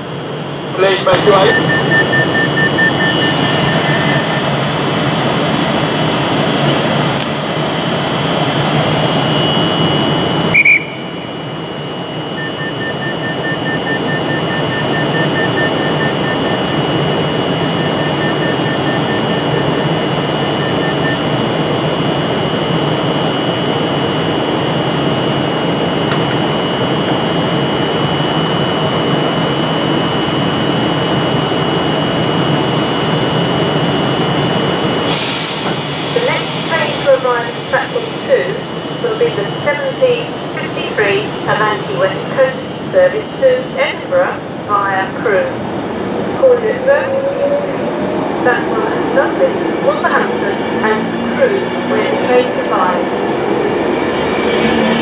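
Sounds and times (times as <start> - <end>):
electric train hum and whine: 0.0 - 55.0
door warning beeping: 0.8 - 4.8, 8.8 - 21.7.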